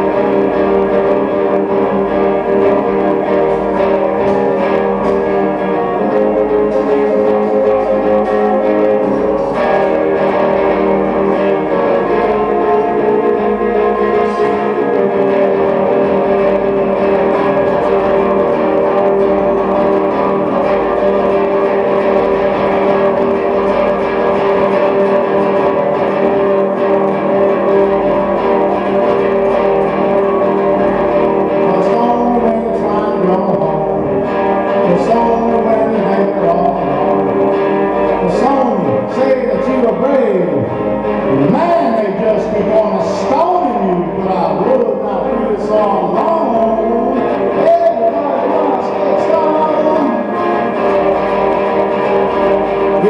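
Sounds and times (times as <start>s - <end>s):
solo guitar playing slowly: 0.0s - 53.0s.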